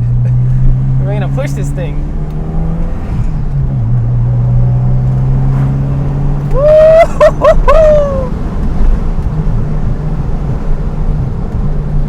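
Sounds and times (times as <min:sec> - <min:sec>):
car engine running: 0:00.0 - 0:12.0
man whooping: 0:06.5 - 0:08.4.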